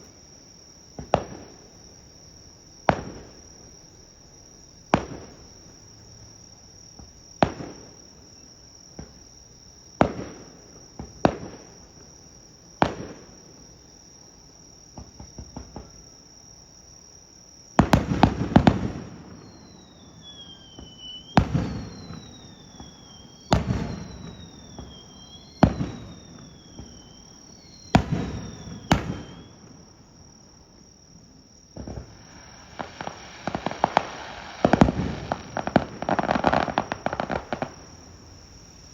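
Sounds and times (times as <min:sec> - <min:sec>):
insects chirring: 0:00.0 - 0:38.9
fireworks bursting with bangs: 0:00.9 - 0:01.7, 0:02.8 - 0:03.6, 0:04.9 - 0:05.6, 0:07.0 - 0:09.3, 0:10.0 - 0:12.1, 0:12.8 - 0:13.5, 0:17.8 - 0:30.2, 0:31.6 - 0:38.7
fireworks crackling: 0:17.8 - 0:30.0, 0:31.8 - 0:38.7
falling whistles: 0:19.0 - 0:30.0, 0:32.0 - 0:38.9.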